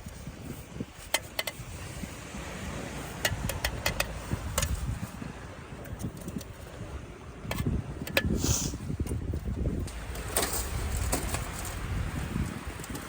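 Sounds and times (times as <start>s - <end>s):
light clicks and knocks: 3.2s - 4.8s.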